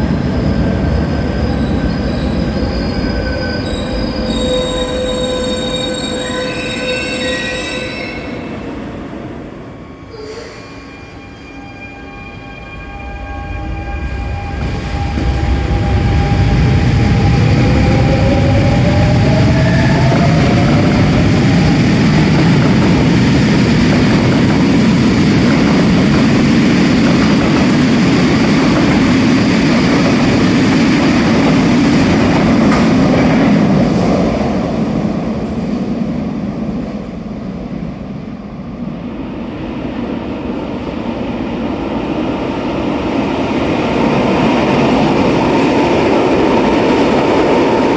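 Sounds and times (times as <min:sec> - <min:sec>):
wheels rumbling on rail: 0:13.2 - 0:38.2.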